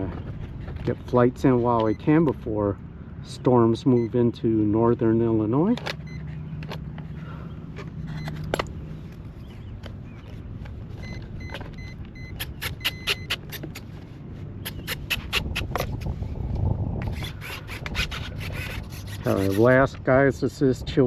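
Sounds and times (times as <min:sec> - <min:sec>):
short high beeps: 0:11.0 - 0:13.4
wind buffeting microphone: 0:14.6 - 0:21.0.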